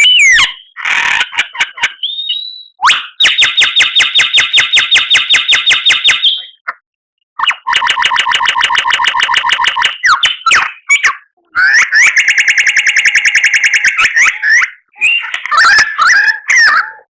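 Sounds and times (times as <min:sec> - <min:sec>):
bird whistled phrases: 0:00.0 - 0:00.8, 0:01.8 - 0:06.7, 0:09.5 - 0:17.0
bird rapid repeated notes: 0:00.0 - 0:06.8, 0:07.4 - 0:16.5.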